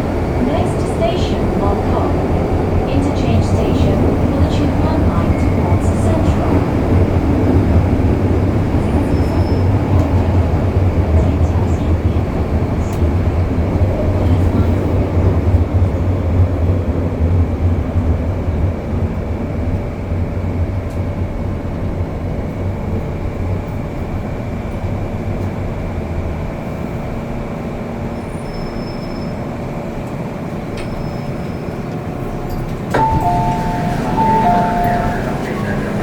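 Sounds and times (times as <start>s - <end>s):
train rumbling on track: 0.0s - 36.0s
two-tone chime: 33.0s - 36.0s.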